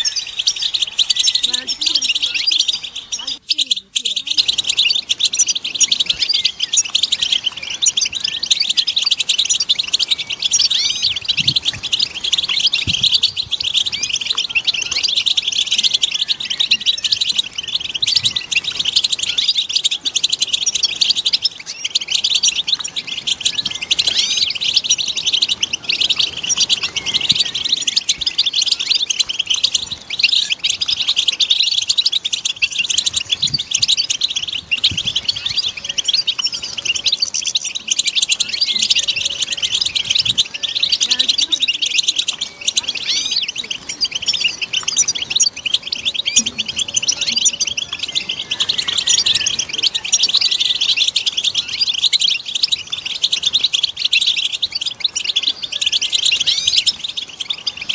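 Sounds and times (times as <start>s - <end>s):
goldfinches twittering: 0.0s - 57.9s.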